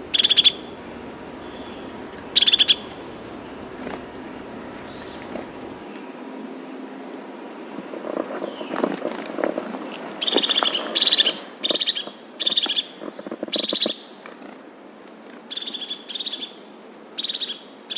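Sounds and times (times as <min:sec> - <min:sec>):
bird calling in buzzy trills: 0:00.0 - 0:05.8.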